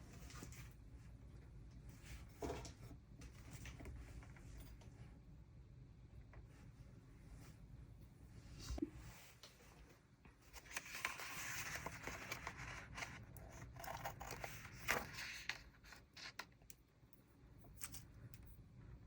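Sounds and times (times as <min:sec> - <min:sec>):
scissors cutting paper: 0:10.7 - 0:16.7.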